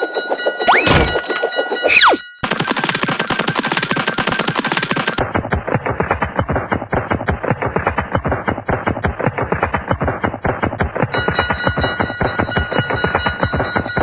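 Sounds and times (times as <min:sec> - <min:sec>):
ringing bell-like tone: 0:00.0 - 0:05.2, 0:11.2 - 0:14.0
rapid clatter of sharp knocks: 0:02.4 - 0:05.6.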